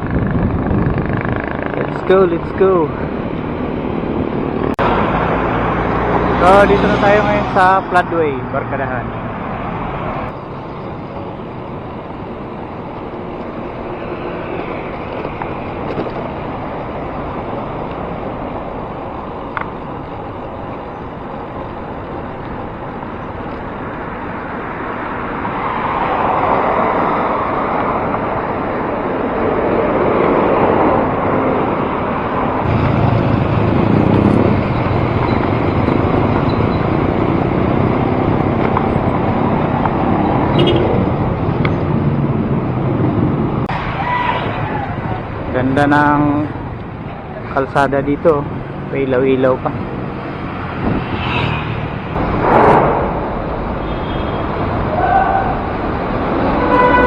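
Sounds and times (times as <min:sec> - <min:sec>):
vehicles passing on road: 0:00.0 - 0:57.0.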